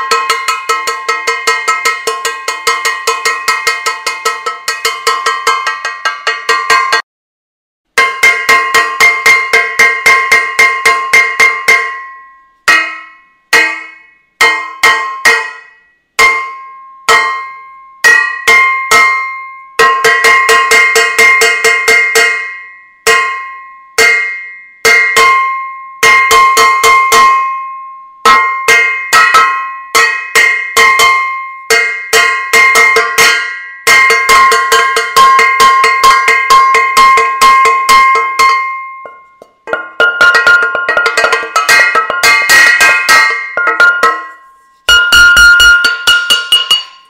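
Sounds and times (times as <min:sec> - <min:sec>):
metal saucepans banging: 0:31.8 - 0:47.0.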